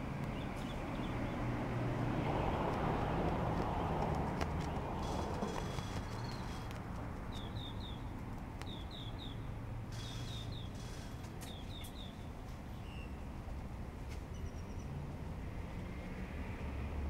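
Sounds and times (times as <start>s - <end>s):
bird chirping: 0.3s - 1.5s, 4.6s - 13.2s, 14.3s - 15.0s.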